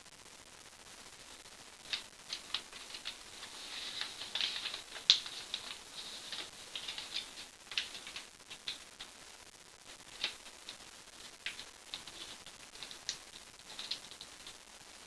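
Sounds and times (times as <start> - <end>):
paper rustling and crackling: 1.8 - 9.1, 9.9 - 14.6.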